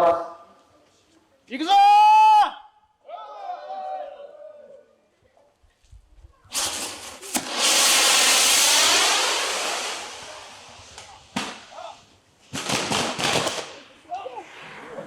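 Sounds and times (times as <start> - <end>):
fireworks spraying sparks hiss: 6.5 - 14.0
firework cracks: 6.5 - 14.1.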